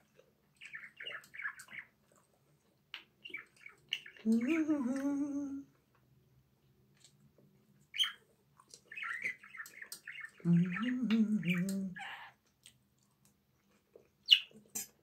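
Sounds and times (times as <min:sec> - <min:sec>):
small bird chirping: 0:00.5 - 0:02.0, 0:02.9 - 0:04.8, 0:07.8 - 0:12.4, 0:14.2 - 0:14.9
person humming low note: 0:04.3 - 0:05.7, 0:10.5 - 0:12.0.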